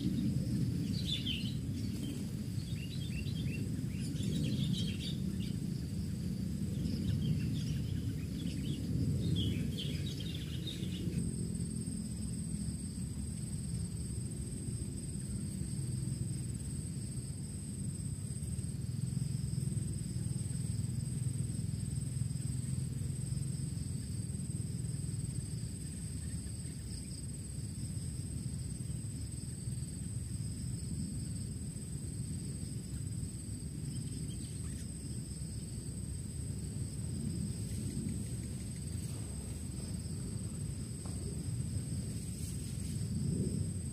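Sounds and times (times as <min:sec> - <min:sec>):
low wind rumble: 0:00.0 - 0:43.9
insects shrilling: 0:14.8 - 0:43.9.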